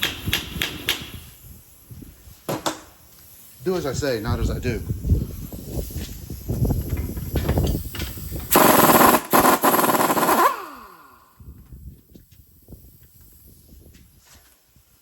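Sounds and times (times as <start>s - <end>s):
air tool hammering rattle: 0.0s - 1.7s, 5.4s - 11.8s.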